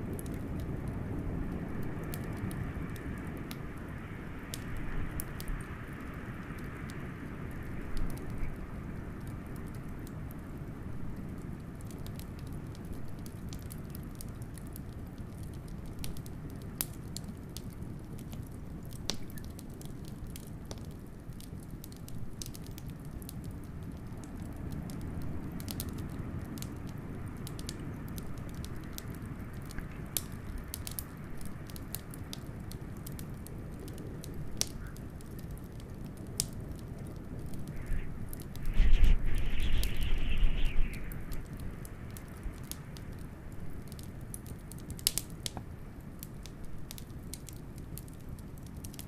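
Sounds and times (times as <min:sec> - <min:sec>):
wood fire crackling and popping: 0:00.0 - 0:49.0
blizzard wind rushing: 0:37.4 - 0:42.4.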